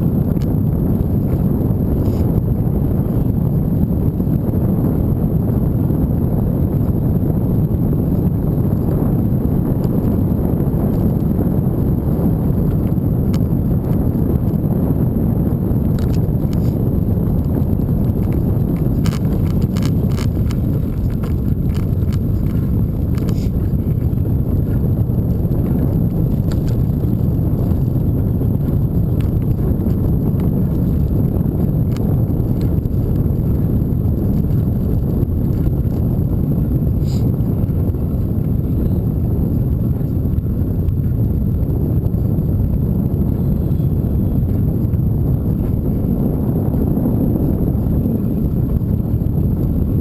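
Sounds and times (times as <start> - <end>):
road noise: 0.0 - 50.0
wind rumble on microphone: 0.0 - 50.0
clicks and rattles: 18.2 - 24.0.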